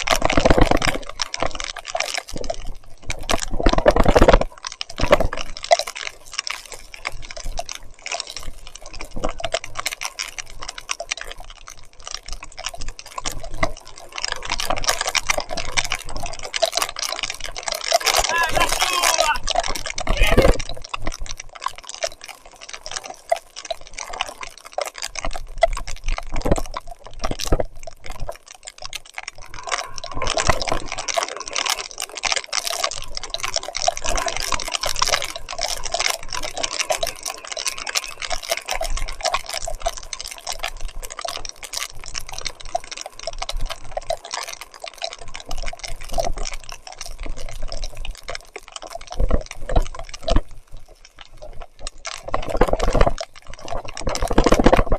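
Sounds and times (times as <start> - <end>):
heavy rain: 15.0 - 25.3, 28.7 - 49.2.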